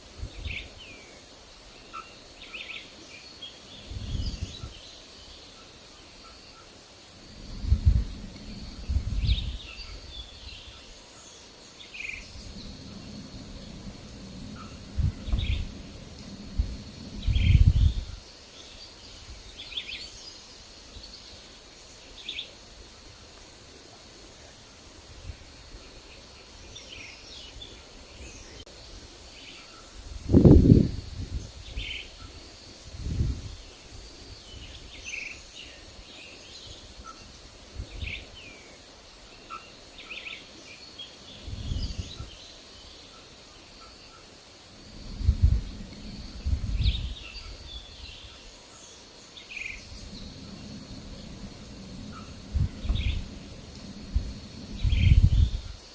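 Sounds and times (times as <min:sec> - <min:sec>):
wind gusts on microphone: 0:00.0 - 0:00.9, 0:03.7 - 0:05.0, 0:07.1 - 0:11.0, 0:11.8 - 0:18.4, 0:29.9 - 0:38.6, 0:41.2 - 0:42.6, 0:44.6 - 0:55.9
forest birds chirping: 0:00.0 - 0:55.9
faint high hum: 0:49.7 - 0:55.7.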